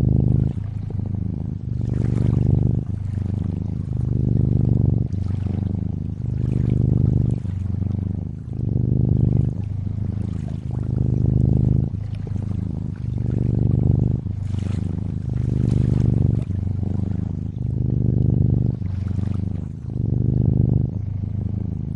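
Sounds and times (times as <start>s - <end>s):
cat purring: 0.0s - 21.9s
faint water sound: 0.0s - 21.9s.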